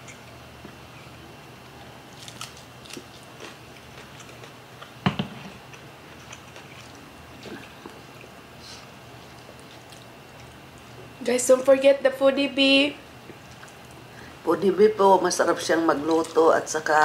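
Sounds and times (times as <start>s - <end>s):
chewing with wet mouth clicks: 5.6s - 8.4s, 9.2s - 11.0s, 13.2s - 14.0s.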